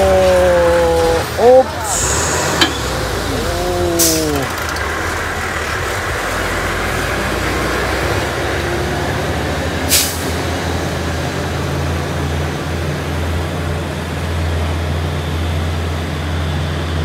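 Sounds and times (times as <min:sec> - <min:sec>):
diesel truck engine running: 0:00.0 - 0:17.0
air brake hiss: 0:01.8 - 0:03.0, 0:09.9 - 0:10.4.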